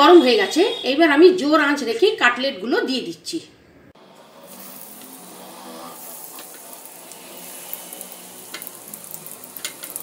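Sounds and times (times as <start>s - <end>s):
chicken frying in hot oil: 4.0s - 10.0s.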